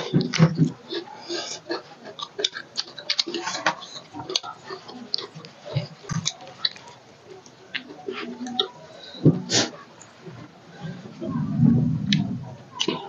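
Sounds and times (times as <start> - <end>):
chewing and lip smacking: 0.0 - 8.8.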